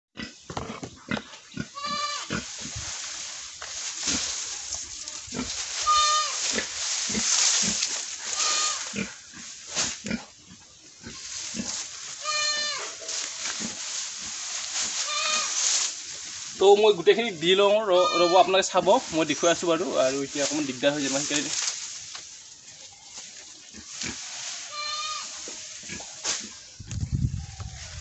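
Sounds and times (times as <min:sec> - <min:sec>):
pig squealing: 0:01.7 - 0:02.4, 0:05.4 - 0:06.5, 0:08.3 - 0:09.2, 0:12.2 - 0:13.0, 0:15.0 - 0:15.6, 0:17.8 - 0:18.7.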